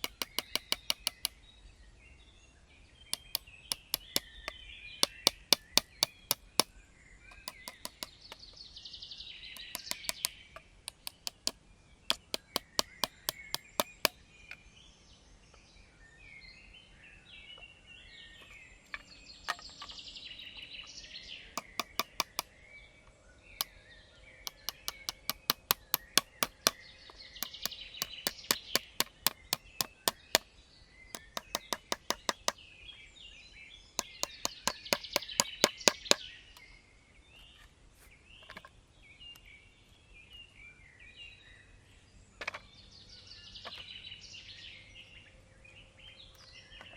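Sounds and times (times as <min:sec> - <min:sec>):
chopping strikes on wood: 0:00.0 - 0:01.3, 0:03.2 - 0:06.7, 0:07.4 - 0:08.2, 0:09.6 - 0:10.3, 0:10.9 - 0:14.2, 0:21.6 - 0:22.5, 0:24.5 - 0:26.8, 0:27.4 - 0:30.5, 0:31.2 - 0:32.6, 0:34.0 - 0:36.2
birds chirping: 0:00.0 - 0:46.9.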